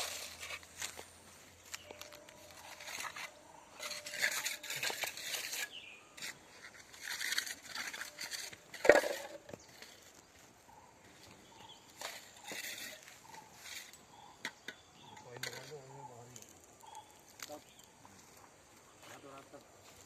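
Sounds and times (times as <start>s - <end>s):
rough scraping noise: 0.0s - 10.1s, 12.0s - 14.0s.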